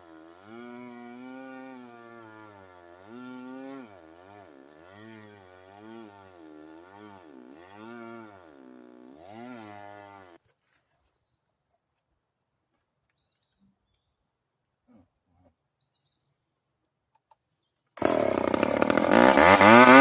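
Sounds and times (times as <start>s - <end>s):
chainsaw cutting wood: 0.0s - 10.4s, 18.0s - 20.0s.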